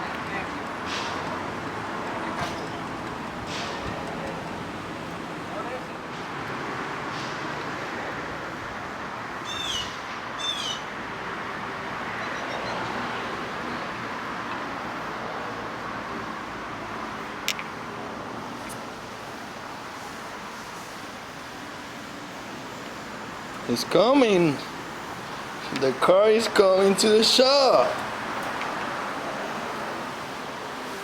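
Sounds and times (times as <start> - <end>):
traffic noise: 0.0 - 31.0
bird calls: 9.4 - 10.9, 12.2 - 13.0.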